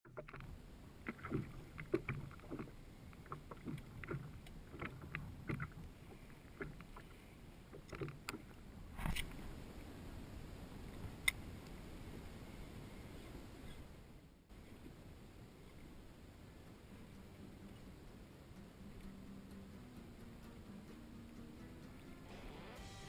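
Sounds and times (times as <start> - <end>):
water knocking against kayak hull: 0.1 - 5.9.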